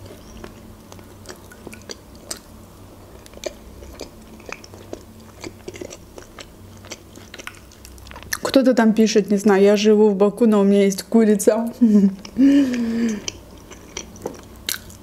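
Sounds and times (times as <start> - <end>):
person chewing food: 0.0 - 8.6, 12.1 - 15.0.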